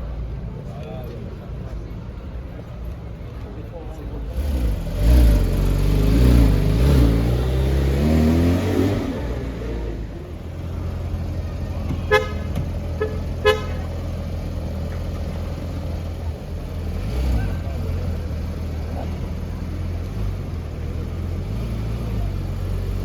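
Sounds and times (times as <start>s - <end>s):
traffic rumble: 0.0s - 23.0s
car engine revving: 4.3s - 23.0s
car horn toots: 12.0s - 14.2s.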